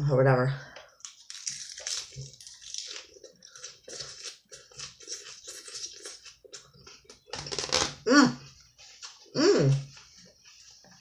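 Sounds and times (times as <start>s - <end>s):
person chewing crisp salad: 1.0s - 8.0s.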